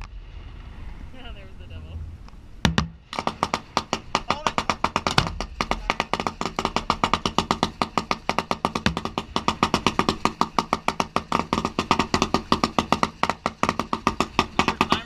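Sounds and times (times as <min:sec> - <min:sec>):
deep firework thump: 0:02.6 - 0:15.0
fireworks crackling rapidly: 0:03.0 - 0:15.0.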